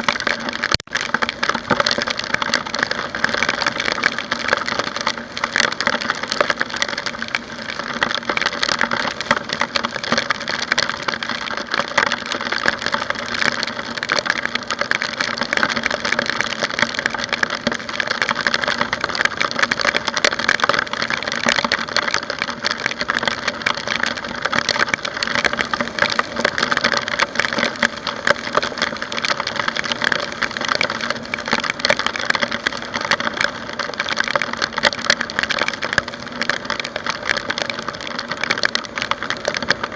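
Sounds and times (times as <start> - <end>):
rain and wind crackling: 0.0 - 39.9.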